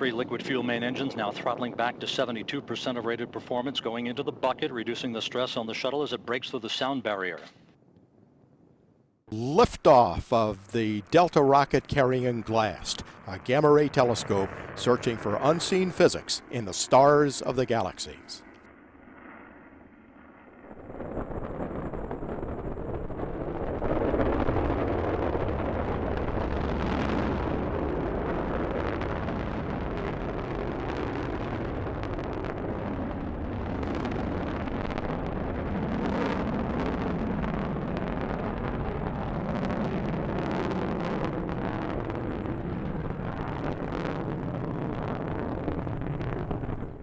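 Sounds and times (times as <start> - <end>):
rocket engine roar: 0.0 - 7.2, 9.3 - 47.0
sharp crackles: 9.3 - 18.7, 20.6 - 47.0.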